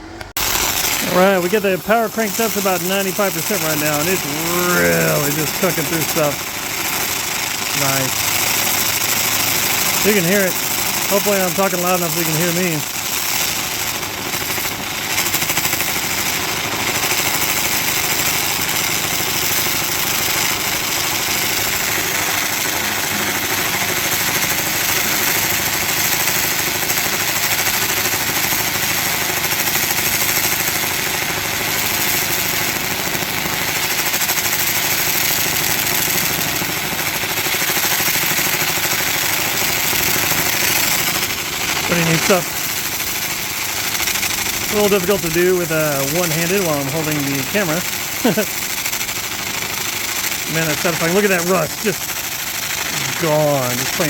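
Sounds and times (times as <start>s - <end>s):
laser cleaner hissing and crackling: 0.2s - 54.0s.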